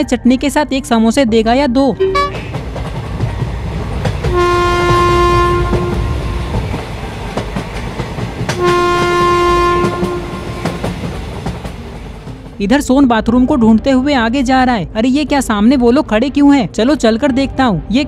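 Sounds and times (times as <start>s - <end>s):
train rumbling on rails: 0.1s - 15.9s
train horn blasts: 2.0s - 2.5s, 4.2s - 7.1s, 8.5s - 11.1s.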